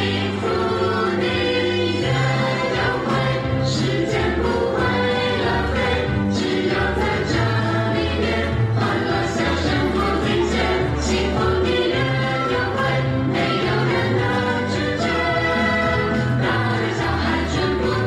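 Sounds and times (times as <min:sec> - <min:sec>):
group of voices singing: 0:00.0 - 0:18.0.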